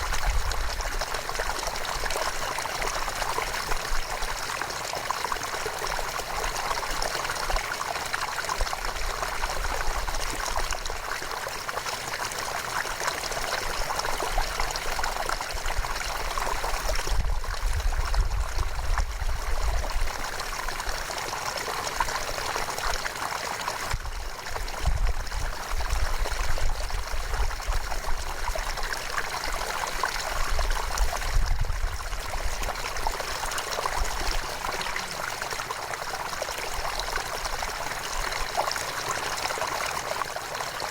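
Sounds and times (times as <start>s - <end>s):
river flowing: 32.1s - 40.9s.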